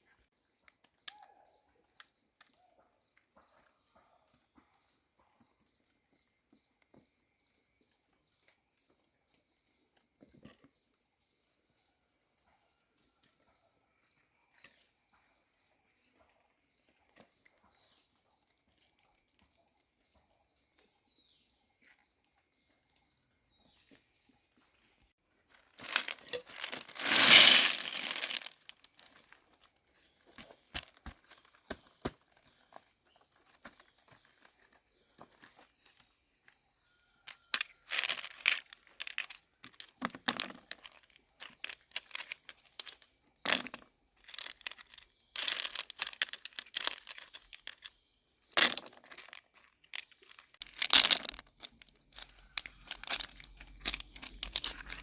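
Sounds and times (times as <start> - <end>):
crinkling and rustling: 25.5 - 36.1, 37.5 - 55.0.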